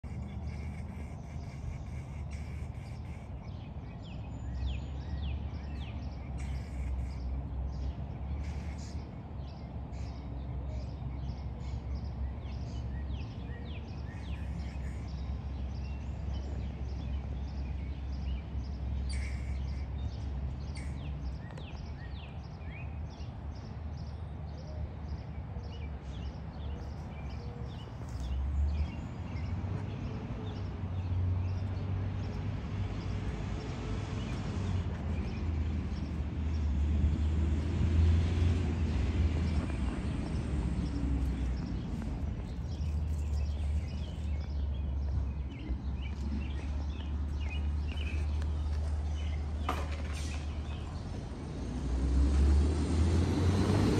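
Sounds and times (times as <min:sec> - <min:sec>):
squirrel chirping: 0:00.0 - 0:03.3
steady low rumble: 0:38.6 - 0:49.6.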